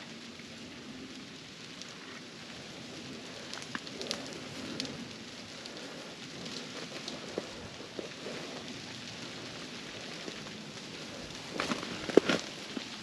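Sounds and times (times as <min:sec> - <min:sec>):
light rain pattering on ice: 0:00.0 - 0:13.0
ice clicking and cracking: 0:03.3 - 0:05.0, 0:05.6 - 0:13.0.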